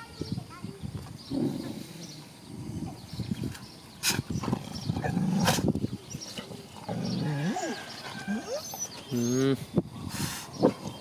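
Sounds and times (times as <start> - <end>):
dogs growling and scuffling: 1.0 - 9.5.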